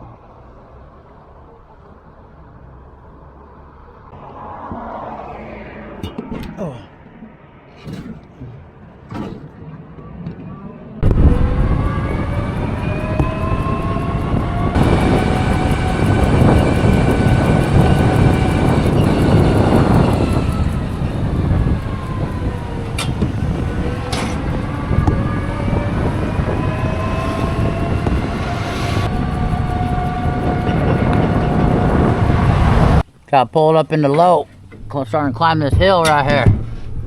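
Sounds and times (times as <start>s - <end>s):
wind and road noise: 0.0s - 37.0s
electric motor whine: 11.0s - 33.0s.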